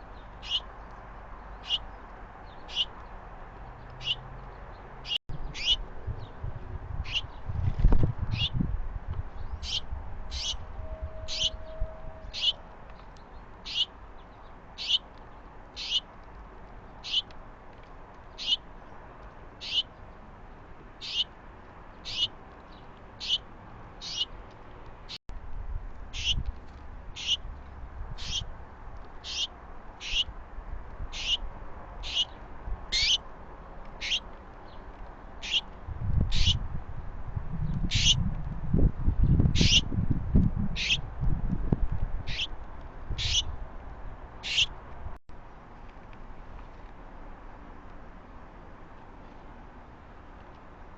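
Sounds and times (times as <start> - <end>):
bird short high call: 9.6 - 12.7.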